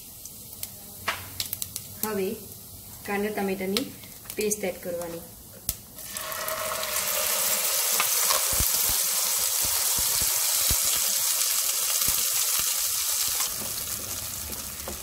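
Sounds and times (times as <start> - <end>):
paste sizzling in oil: 6.0 - 15.0.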